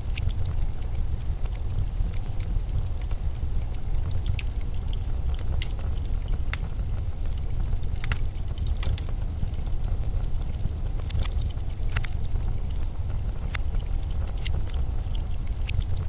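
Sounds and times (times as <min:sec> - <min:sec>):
sharp crackles and ticks: 0:00.0 - 0:16.0.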